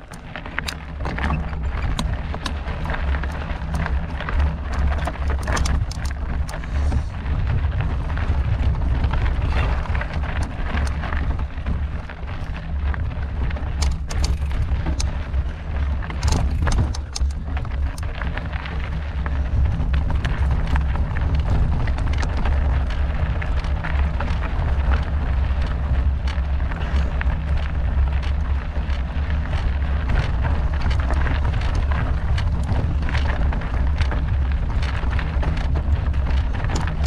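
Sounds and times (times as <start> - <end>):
bike clicks and rattles: 0.0 - 37.0
wind buffeting microphone: 0.0 - 37.0.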